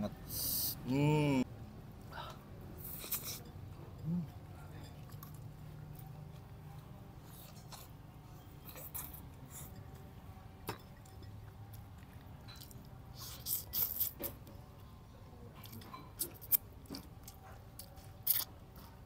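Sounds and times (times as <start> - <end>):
people chewing and crunching: 2.0 - 19.0.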